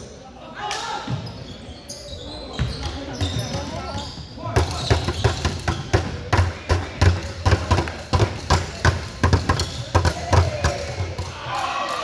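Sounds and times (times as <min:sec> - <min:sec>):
basketball bouncing on gym floor: 0:02.6 - 0:11.3.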